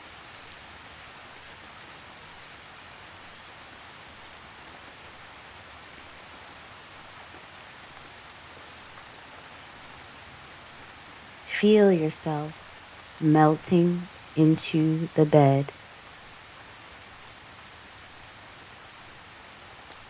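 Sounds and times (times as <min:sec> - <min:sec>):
faint raindrop ticks: 0:00.0 - 0:11.5, 0:15.7 - 0:20.0
gentle rain: 0:00.0 - 0:20.0.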